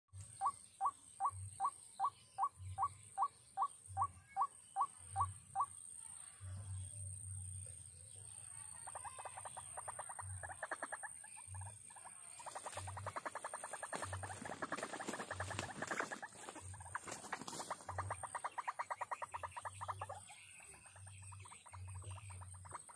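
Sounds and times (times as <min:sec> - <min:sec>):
rapid pulsed animal calls: 0:00.3 - 0:05.8, 0:08.8 - 0:22.9.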